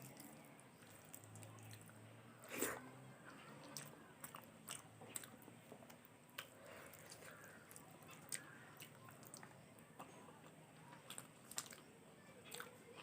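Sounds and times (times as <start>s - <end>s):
close-up chewing: 3.6s - 13.0s.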